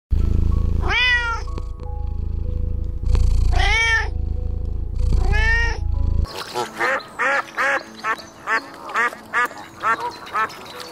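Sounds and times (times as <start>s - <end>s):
background music: 0.1s - 10.9s
animal calling: 5.2s - 10.9s.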